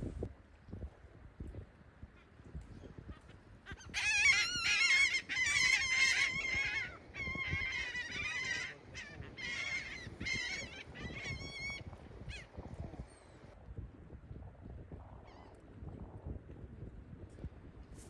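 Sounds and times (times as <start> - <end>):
birds calling: 3.7 - 13.5.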